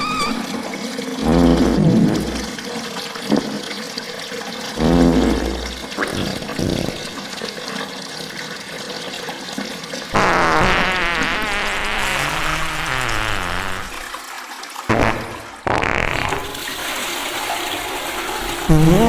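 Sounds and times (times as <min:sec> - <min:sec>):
slowed reverb-heavy farts: 0:00.0 - 0:00.6, 0:01.2 - 0:02.6, 0:03.3 - 0:03.6, 0:04.8 - 0:07.2, 0:10.2 - 0:14.2, 0:14.9 - 0:16.6, 0:18.7 - 0:19.0.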